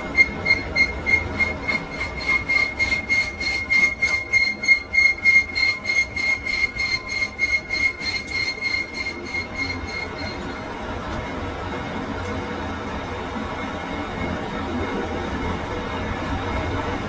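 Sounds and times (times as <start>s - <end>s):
lathe squealing cutting metal: 0.0s - 12.0s.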